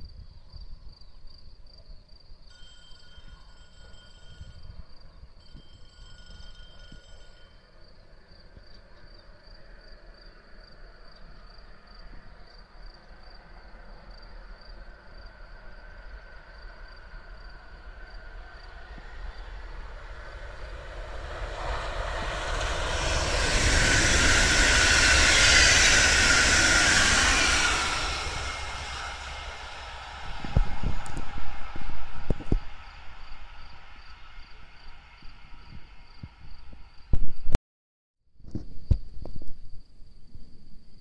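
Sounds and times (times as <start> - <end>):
faint high pulsing tone: 2.5 - 9.4, 13.9 - 37.0
electric train passing: 2.5 - 37.1.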